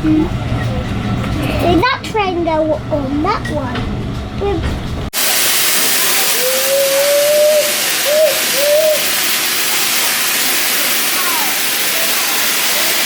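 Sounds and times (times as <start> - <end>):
steady steam hiss: 5.1 - 13.0
steam locomotive whistle: 5.2 - 13.0.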